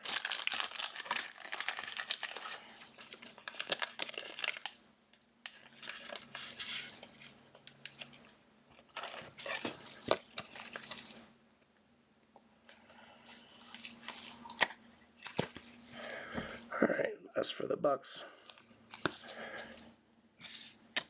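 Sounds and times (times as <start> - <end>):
plastic crinkling and rustling: 0.0 - 4.8, 5.4 - 11.3, 13.4 - 16.7.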